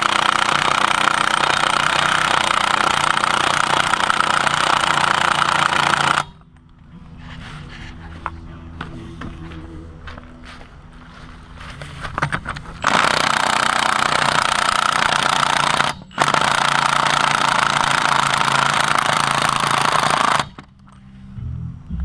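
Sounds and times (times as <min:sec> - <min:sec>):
impact wrench hammering on a nut: 0:00.0 - 0:06.4, 0:12.8 - 0:20.6.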